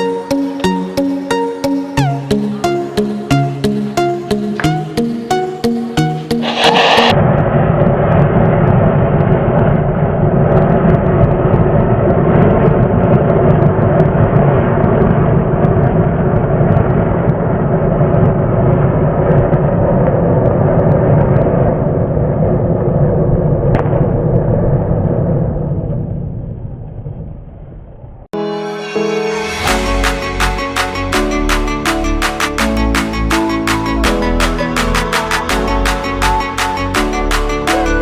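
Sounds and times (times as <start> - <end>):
firework fountain hissing roar: 6.4 - 7.2.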